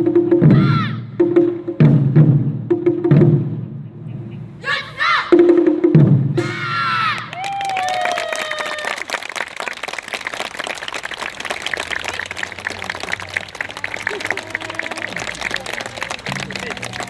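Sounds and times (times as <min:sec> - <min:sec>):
voices calling out: 0:04.4 - 0:05.6, 0:11.4 - 0:17.0
crowd applauding: 0:06.9 - 0:17.0.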